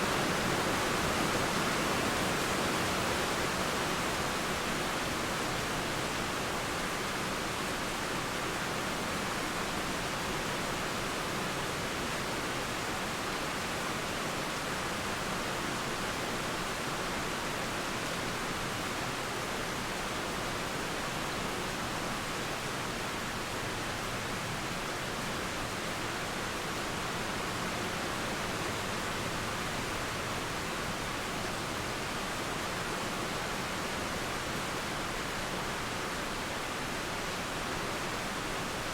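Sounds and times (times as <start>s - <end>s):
flowing water: 0.0s - 38.9s
steady rain: 0.0s - 38.9s.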